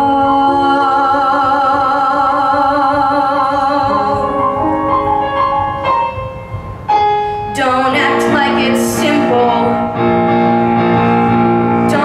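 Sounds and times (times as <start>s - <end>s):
sustained musical accompaniment: 3.0s - 12.0s.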